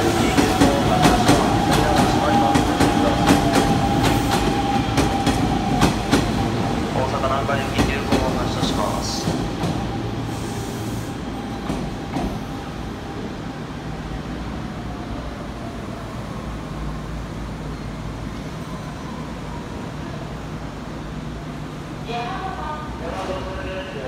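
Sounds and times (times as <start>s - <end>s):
electric train pulling in: 0.0s - 20.2s.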